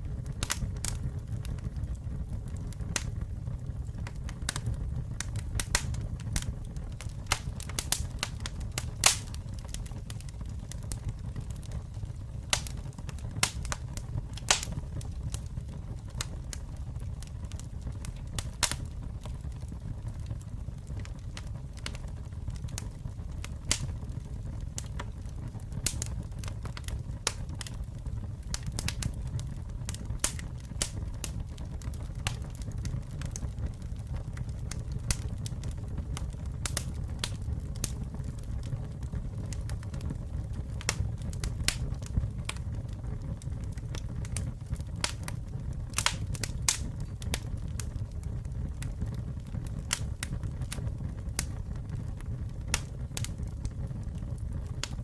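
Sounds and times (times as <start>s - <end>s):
campfire crackling: 0.0s - 55.0s.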